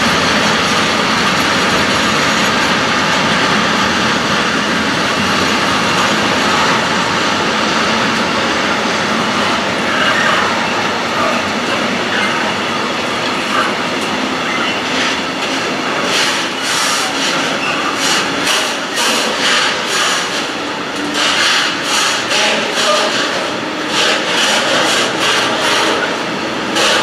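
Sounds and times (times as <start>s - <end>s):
train wheels rumbling on rail: 0.0s - 27.0s
wheels clattering over rail joints: 14.9s - 27.0s
wheel squeal: 16.2s - 20.3s.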